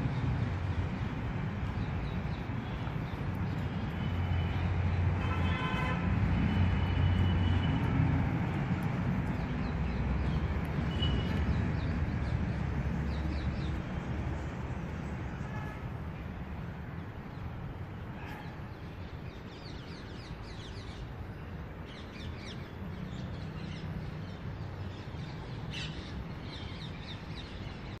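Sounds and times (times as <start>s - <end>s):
small birds chirping: 0.0s - 5.0s, 8.5s - 14.6s.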